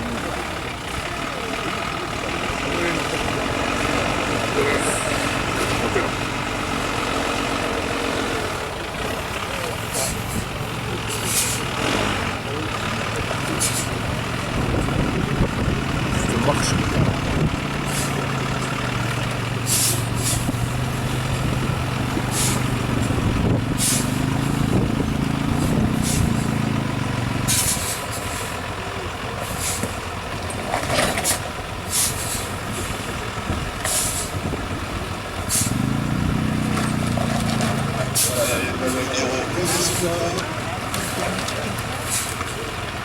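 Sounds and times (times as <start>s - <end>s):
diesel engine revving: 0.0s - 43.0s
air brakes hissing: 11.1s - 11.8s, 13.6s - 14.0s, 19.6s - 20.6s, 22.3s - 22.8s, 23.8s - 24.3s, 25.9s - 26.6s, 27.5s - 28.6s, 29.4s - 30.0s, 31.2s - 33.0s, 33.8s - 34.4s, 35.5s - 35.9s, 38.2s - 38.5s, 42.0s - 42.4s.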